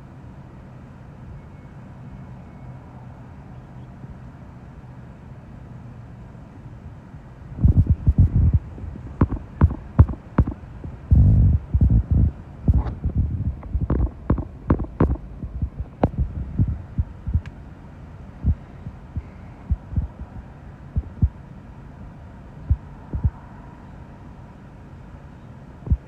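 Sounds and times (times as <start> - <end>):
steady low hum: 3.2 - 26.0
wind buffeting microphone: 7.5 - 17.6, 18.3 - 21.4, 22.7 - 23.5.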